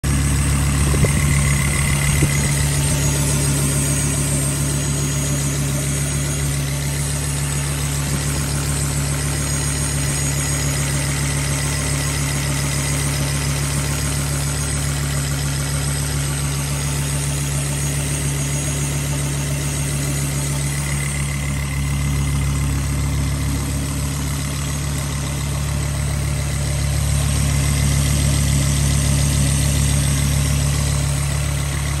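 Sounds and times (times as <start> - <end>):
car engine idling: 0.0 - 32.0
high-pitched electrical whine: 0.5 - 7.6.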